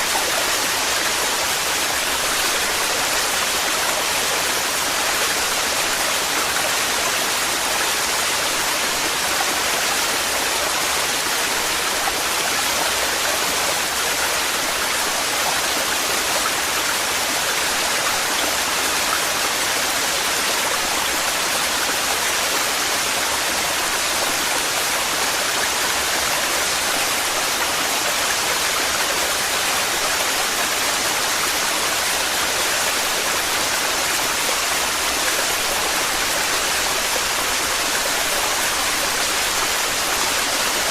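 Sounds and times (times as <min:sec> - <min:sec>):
waterfall rushing: 0:13.8 - 0:40.9.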